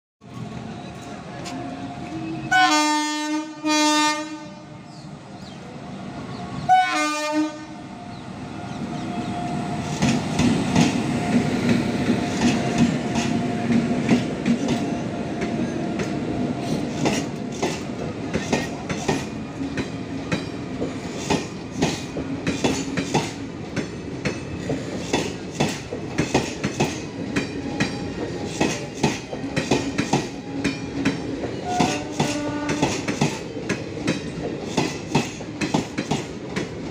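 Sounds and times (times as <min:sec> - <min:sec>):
train horn: 0:01.4 - 0:04.9, 0:06.7 - 0:08.0, 0:31.6 - 0:33.1
train wheels clattering over rail joints: 0:09.8 - 0:36.9.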